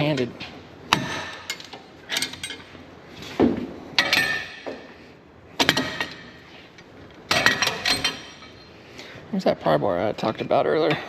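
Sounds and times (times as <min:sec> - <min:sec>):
steel tools clanking on metal: 0:00.9 - 0:02.7, 0:04.0 - 0:04.7, 0:07.3 - 0:08.8.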